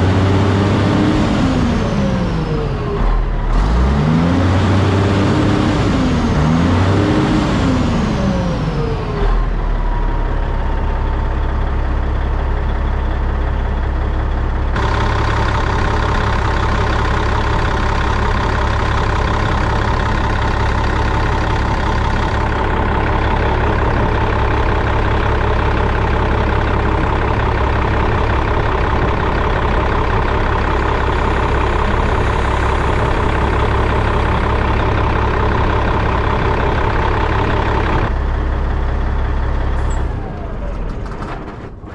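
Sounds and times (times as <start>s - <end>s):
truck diesel engine revving: 0.0s - 11.6s, 14.3s - 40.9s
steady whine: 17.4s - 38.1s.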